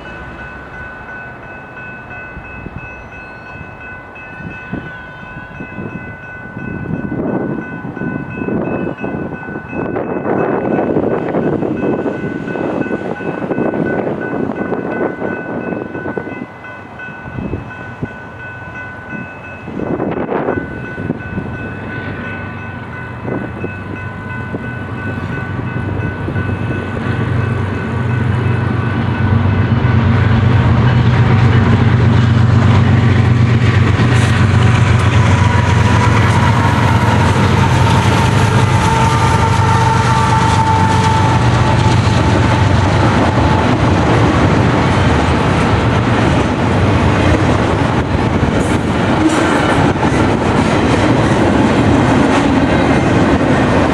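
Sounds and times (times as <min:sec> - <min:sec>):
crossing bell ringing: 0:00.0 - 0:53.9
train rumbling past: 0:00.0 - 0:53.9
wheels clattering on rails: 0:18.8 - 0:53.9.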